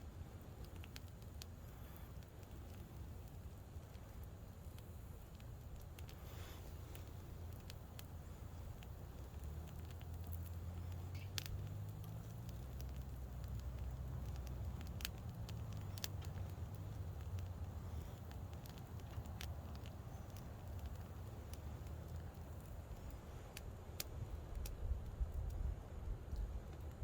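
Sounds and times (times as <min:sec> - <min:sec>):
campfire crackling and popping: 0:00.0 - 0:27.0
fire low rumble: 0:00.0 - 0:27.0.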